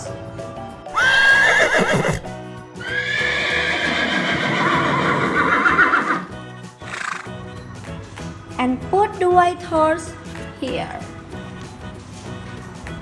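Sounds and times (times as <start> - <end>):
horse neighing: 0.9 - 7.3.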